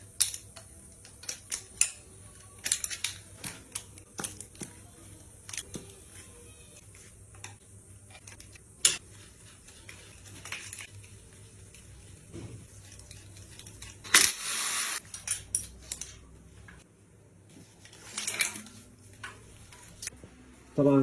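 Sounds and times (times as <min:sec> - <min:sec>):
metal tools clinking and knocking: 0:15.0 - 0:16.2.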